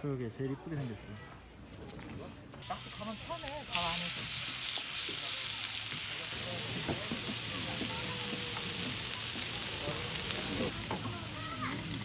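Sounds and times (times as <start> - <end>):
food sizzling in hot oil: 2.6 - 12.0.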